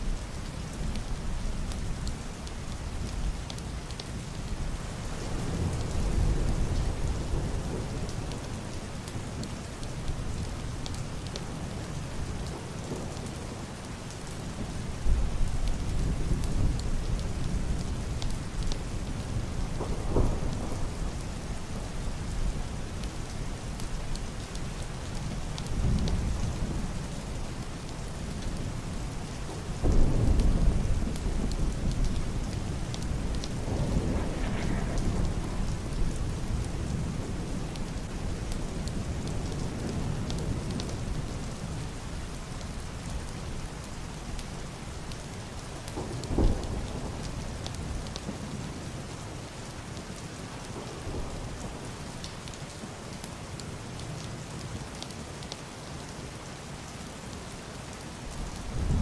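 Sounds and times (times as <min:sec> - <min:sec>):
heavy rain on roof and window: 0:00.0 - 0:59.0
thunder rumbling: 0:14.6 - 0:23.3, 0:25.1 - 0:42.0, 0:45.9 - 0:48.5, 0:58.4 - 0:59.0
sharp thunder clap: 0:33.6 - 0:36.0.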